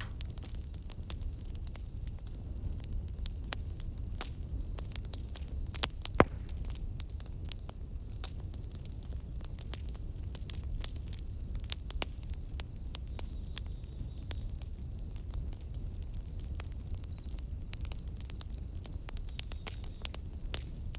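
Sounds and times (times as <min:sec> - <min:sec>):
low rumble of flame: 0:00.0 - 0:20.9
wood fire crackling and popping: 0:00.0 - 0:20.9.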